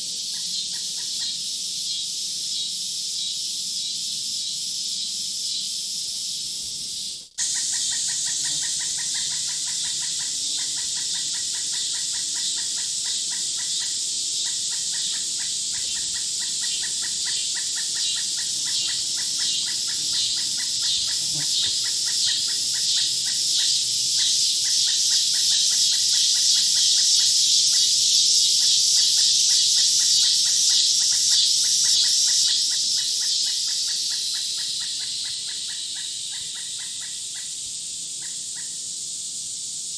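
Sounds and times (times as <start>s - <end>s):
chorus of animal chirping: 7.4s - 27.9s.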